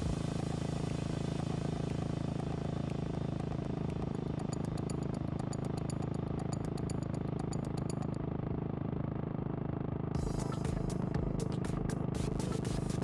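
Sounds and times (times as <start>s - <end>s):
motorcycle engine running: 0.0s - 13.0s
fast light ticking: 1.9s - 8.2s.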